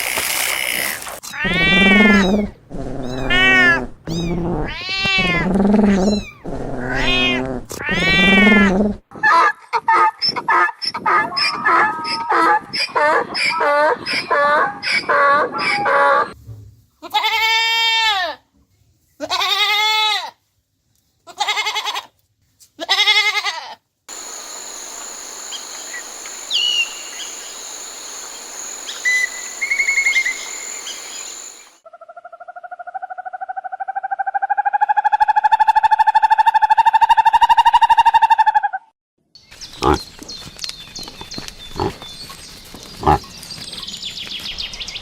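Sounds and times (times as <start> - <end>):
bird chirps: 24.1 - 31.8
high-pitched outdoor hum: 24.1 - 31.8
long pulsed animal call: 24.1 - 31.8.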